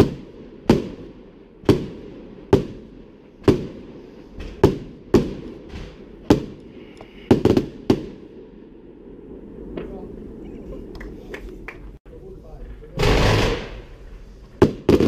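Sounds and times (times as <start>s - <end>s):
fireworks bangs: 0.0s - 15.0s
voices: 9.7s - 13.2s.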